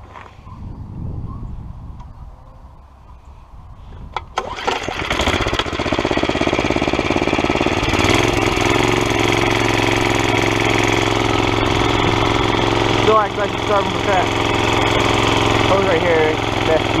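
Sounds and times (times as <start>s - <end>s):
small engine starting and idling: 4.2s - 17.0s
man talking: 13.0s - 14.4s, 15.7s - 17.0s.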